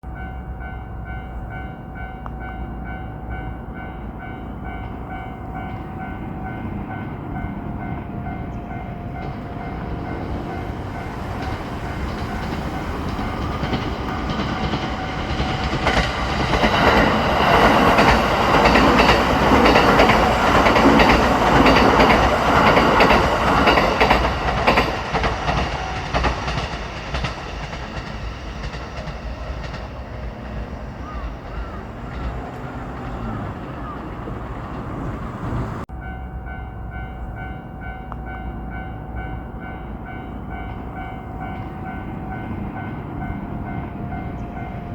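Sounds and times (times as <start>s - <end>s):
train rumble: 0.0s - 44.9s
wheel clatter over rail joints: 8.7s - 35.8s.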